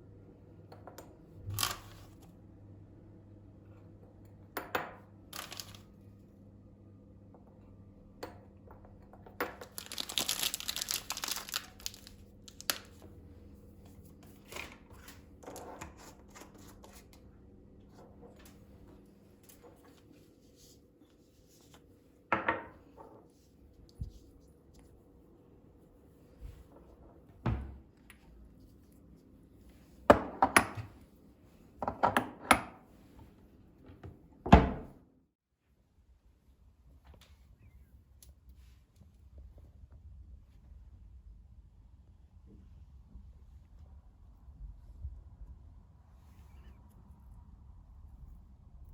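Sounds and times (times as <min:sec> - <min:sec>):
packaging crinkling: 0:05.4 - 0:05.8, 0:09.6 - 0:13.0.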